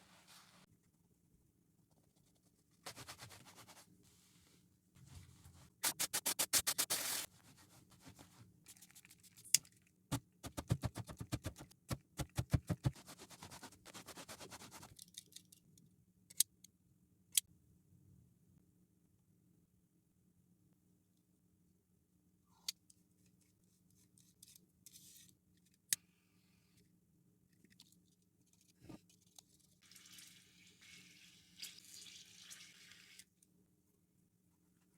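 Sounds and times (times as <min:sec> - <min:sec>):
brush scrubbing a shoe: 0:05.8 - 0:08.3, 0:10.4 - 0:14.9.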